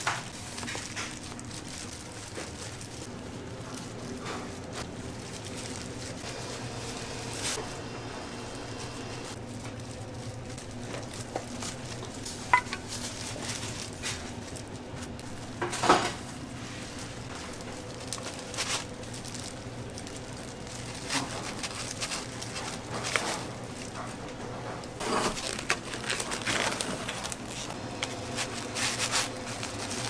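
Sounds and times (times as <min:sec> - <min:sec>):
dishes and utensils clinking: 0:12.5 - 0:12.9.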